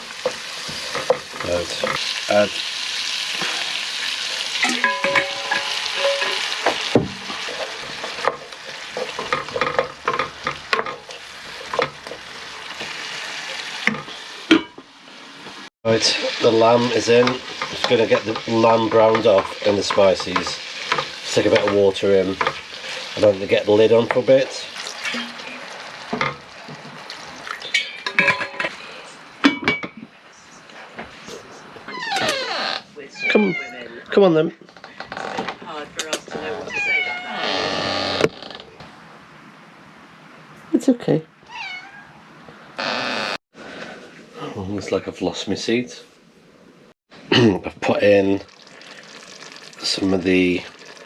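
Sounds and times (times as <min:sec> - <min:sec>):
food sizzling in a hot pan: 0:00.0 - 0:27.5, 0:48.1 - 0:51.0
metal pot and utensils clattering: 0:04.5 - 0:12.2, 0:16.6 - 0:23.0, 0:24.8 - 0:28.8, 0:29.4 - 0:30.1.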